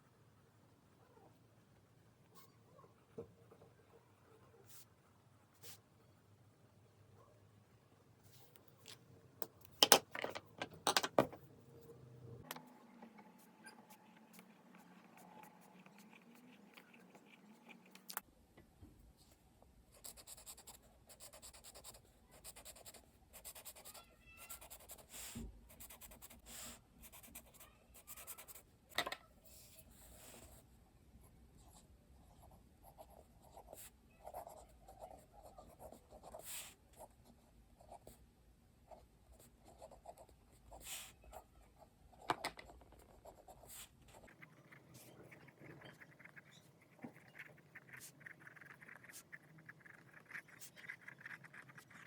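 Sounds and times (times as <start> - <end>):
pen scratching on paper: 13.4 - 17.9, 24.6 - 25.1, 25.7 - 28.6, 31.6 - 37.1, 38.9 - 41.5, 43.0 - 52.0.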